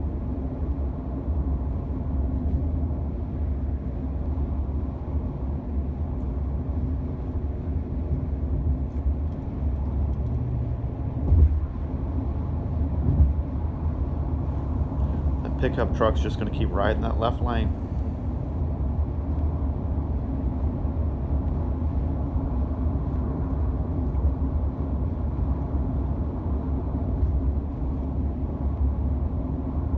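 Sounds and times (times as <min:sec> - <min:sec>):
road and tyre rumble: 0:00.1 - 0:18.8.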